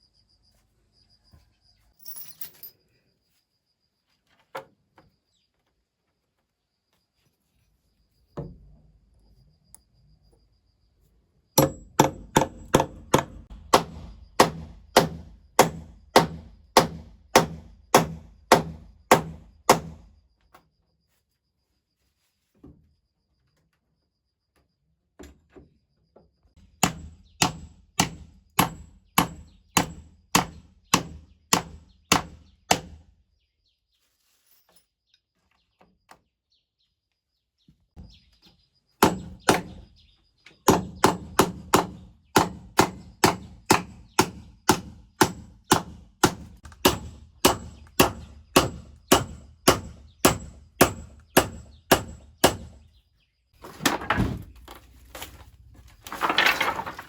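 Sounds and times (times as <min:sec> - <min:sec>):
hand tool striking wood: 0:11.6 - 0:20.0, 0:26.6 - 0:33.0, 0:39.0 - 0:39.8, 0:40.6 - 0:52.8.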